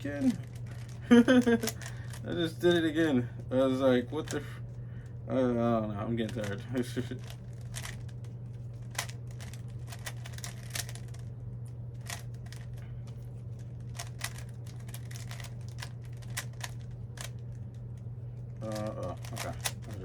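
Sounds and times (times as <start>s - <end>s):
low hum: 0.0s - 20.0s
puzzle cube clicking: 1.4s - 2.2s, 7.2s - 8.1s, 8.9s - 11.2s, 13.9s - 17.4s, 18.6s - 20.0s.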